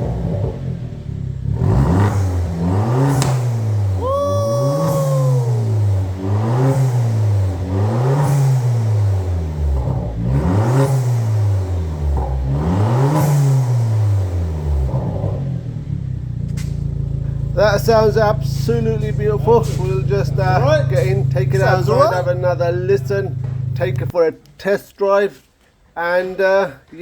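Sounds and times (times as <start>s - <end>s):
car engine revving: 0.0s - 24.6s
falling whistle: 4.0s - 5.8s.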